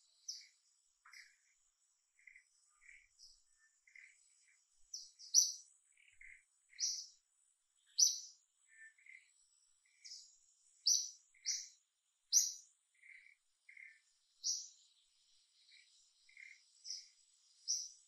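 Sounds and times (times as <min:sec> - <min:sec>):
faint high insect whine: 0:00.0 - 0:07.2, 0:07.8 - 0:18.0
birds chirping: 0:00.0 - 0:18.0.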